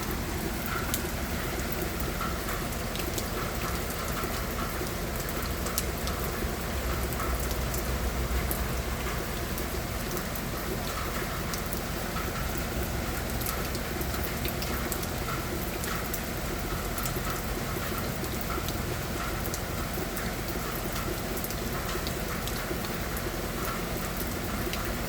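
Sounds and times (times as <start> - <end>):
steady rain hiss: 0.0 - 5.2
raindrops ticking: 0.0 - 25.0.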